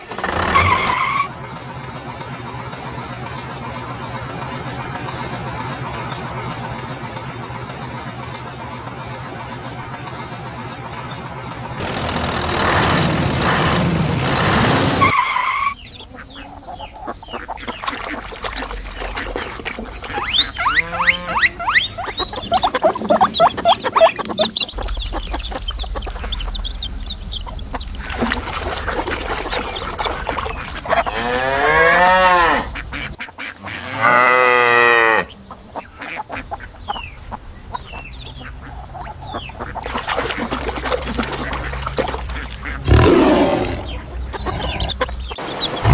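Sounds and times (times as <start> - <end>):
duck quacking: 15.0 - 45.9
cow mooing: 20.6 - 21.6, 31.1 - 32.8, 33.8 - 35.3, 42.8 - 45.0.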